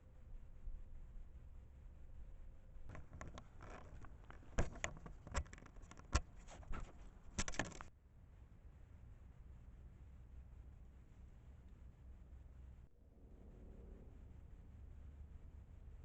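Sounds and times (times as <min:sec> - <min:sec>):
animals rummaging scrapes and rustles: 0:02.9 - 0:07.9.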